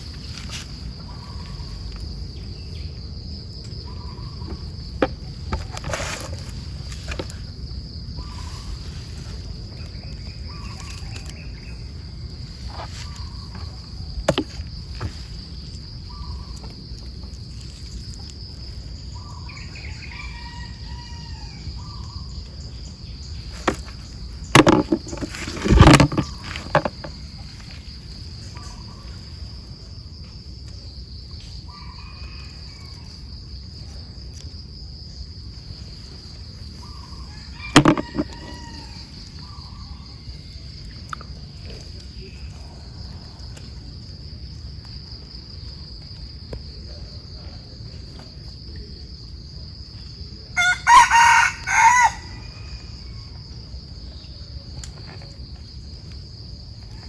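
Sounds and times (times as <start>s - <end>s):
insects trilling: 0.0s - 57.0s
sharp knocks and bumps: 4.5s - 6.4s, 13.5s - 15.3s, 23.6s - 27.2s, 37.8s - 38.5s.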